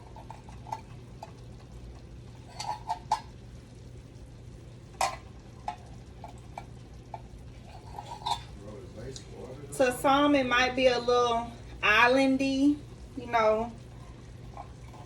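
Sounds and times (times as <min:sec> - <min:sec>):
utensil scraping frying pan: 0:00.0 - 0:03.4, 0:05.0 - 0:08.6
food sizzling: 0:00.0 - 0:15.0.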